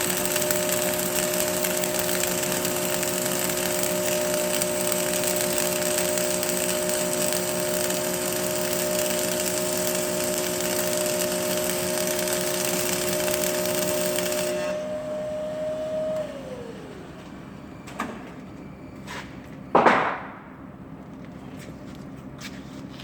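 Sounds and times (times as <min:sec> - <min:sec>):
power tool motor whining: 0:00.0 - 0:17.4.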